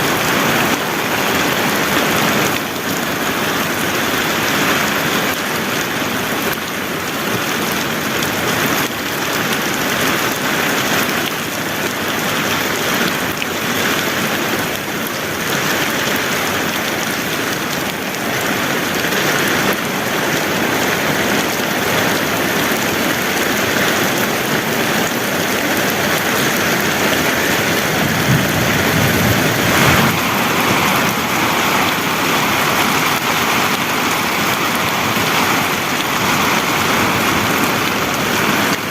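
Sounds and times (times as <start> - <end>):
heavy rain falling: 0.0 - 38.9
low rumble: 28.0 - 31.7.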